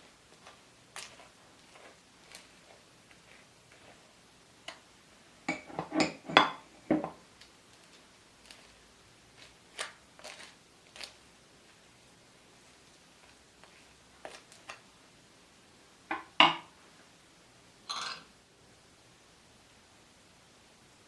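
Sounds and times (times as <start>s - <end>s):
kitchen utensils and dishes clinking: 5.5s - 7.1s, 17.9s - 18.3s.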